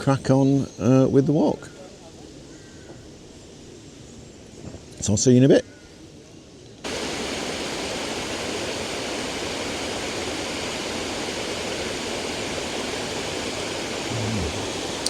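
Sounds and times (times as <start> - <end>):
water rushing over a spillway: 6.9 - 15.0.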